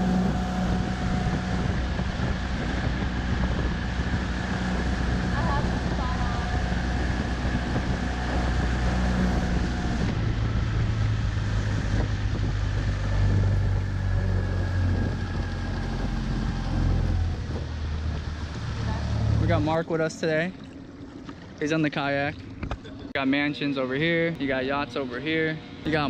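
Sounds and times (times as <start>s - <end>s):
wind on microphone: 0.0s - 19.9s
small outboard motor humming: 0.0s - 26.0s.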